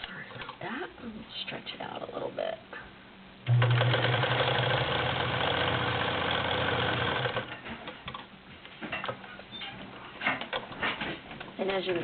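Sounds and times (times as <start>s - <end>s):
sewing machine sewing: 3.5s - 7.6s.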